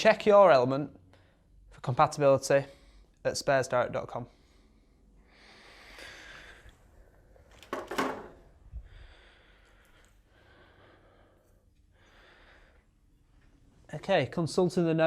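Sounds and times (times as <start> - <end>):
man breathing close to microphone: 4.3 - 7.5, 8.5 - 13.2.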